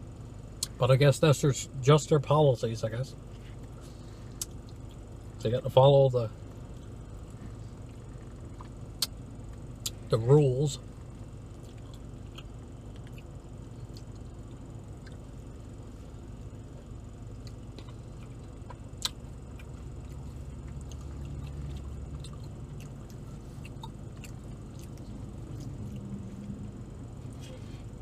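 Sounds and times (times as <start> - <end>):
low steady hum: 0.0 - 28.0
person chewing food: 3.4 - 5.2, 6.6 - 10.1, 11.5 - 26.6.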